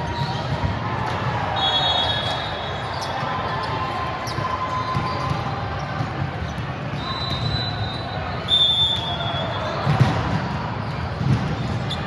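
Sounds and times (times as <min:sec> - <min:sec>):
shoe squeaks: 0:01.6 - 0:05.4.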